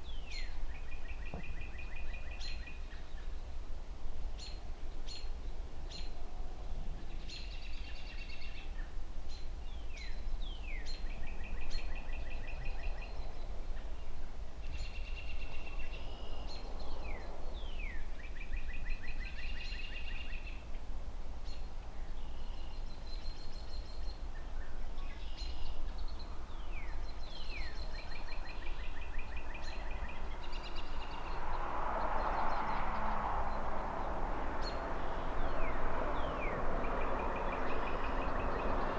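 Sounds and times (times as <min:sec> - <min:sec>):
songbird singing: 0:00.0 - 0:38.9
distant city traffic: 0:25.7 - 0:38.9.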